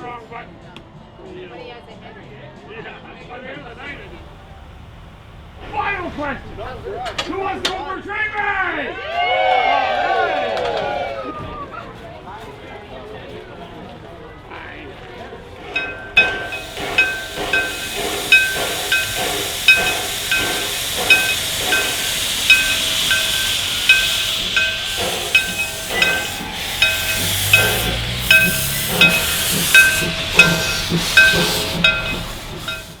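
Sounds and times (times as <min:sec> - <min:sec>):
locomotive hissing steam: 0:03.7 - 0:10.2, 0:15.6 - 0:33.0
locomotive bell ringing: 0:03.8 - 0:08.4, 0:15.8 - 0:33.0.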